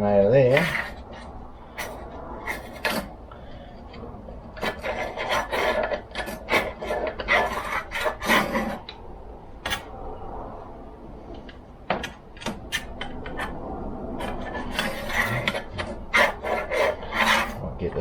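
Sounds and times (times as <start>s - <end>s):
ruler scraping metal groove: 0.4s - 3.7s, 4.5s - 9.0s, 12.0s - 13.6s, 14.2s - 17.6s.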